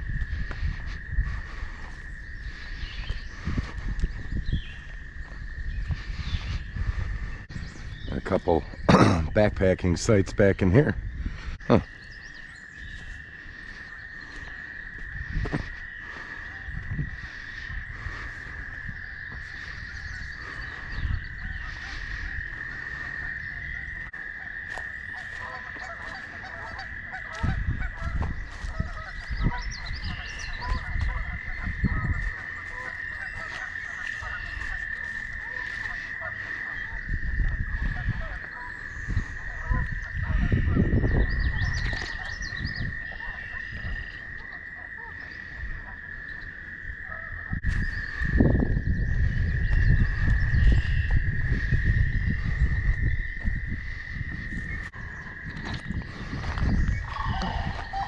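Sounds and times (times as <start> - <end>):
bird calls: 0.0 - 58.0
insects or frogs chorus: 0.0 - 58.0
bird chirps: 4.3 - 8.9, 11.0 - 14.9, 25.4 - 37.0, 38.5 - 44.2
low rumbling noise: 47.4 - 58.0.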